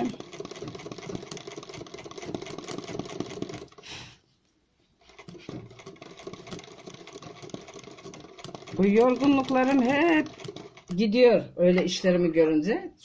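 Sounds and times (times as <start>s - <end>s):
sewing machine stitching rapidly: 0.0s - 3.9s, 5.0s - 11.0s.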